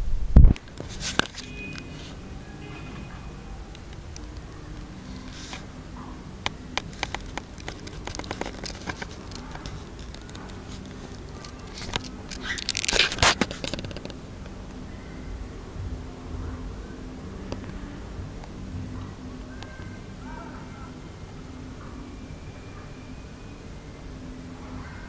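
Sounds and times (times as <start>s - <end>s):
rustling and scraping: 0.3s - 5.8s, 6.4s - 15.2s
bird clicks and scratches: 6.4s - 14.6s.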